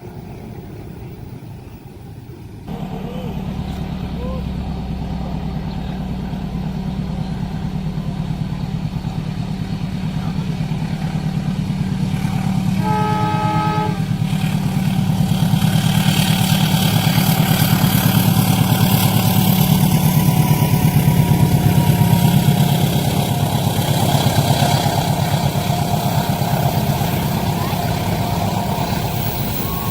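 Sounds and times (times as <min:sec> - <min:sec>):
train engine rumble: 0:00.0 - 0:29.9
train rolling on rails: 0:00.0 - 0:29.9
train horn blast: 0:12.3 - 0:14.7, 0:20.1 - 0:29.9.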